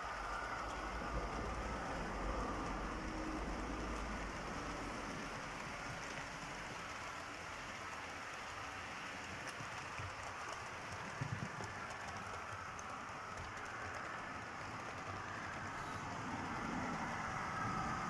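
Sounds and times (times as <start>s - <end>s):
model train running on track: 0.0s - 18.0s
faint clicks: 9.2s - 15.8s.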